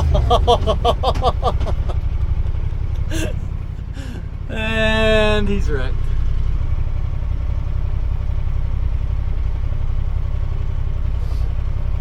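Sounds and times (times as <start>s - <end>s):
utility vehicle engine rumbling: 0.0s - 12.0s.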